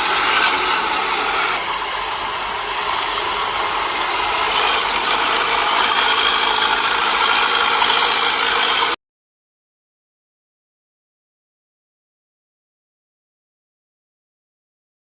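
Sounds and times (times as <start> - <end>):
heavy machinery engine running: 0.0 - 9.0
mechanical clatter: 0.0 - 9.0.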